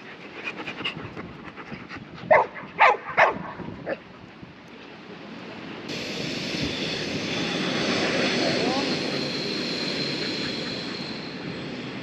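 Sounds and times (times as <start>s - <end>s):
dog barking: 2.3s - 4.0s.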